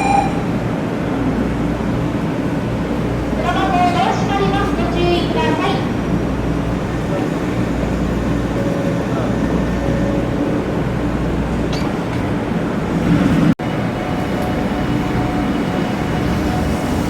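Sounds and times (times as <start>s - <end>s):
trains humming and rumbling: 0.0s - 17.0s
faint steady tones: 3.4s - 12.9s.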